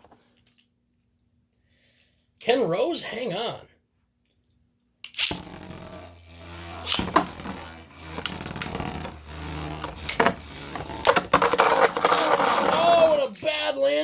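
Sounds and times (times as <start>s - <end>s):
spinning tops clacking together: 5.1s - 7.8s
spinning tops whirring: 5.1s - 13.4s.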